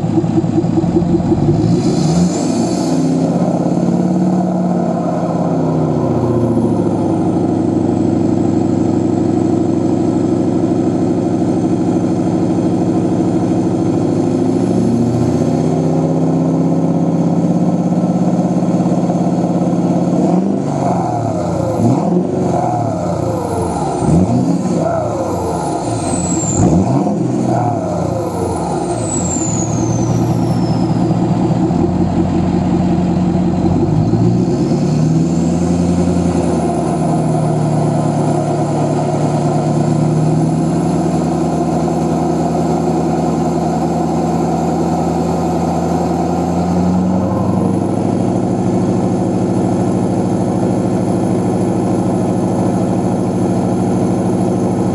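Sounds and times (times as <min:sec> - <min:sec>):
diesel engine revving: 0:00.0 - 0:54.9
turbo whistle: 0:28.8 - 0:31.4.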